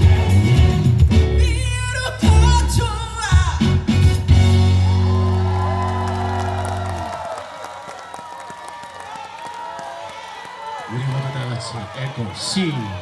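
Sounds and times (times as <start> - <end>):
band playing: 0.0 - 7.4.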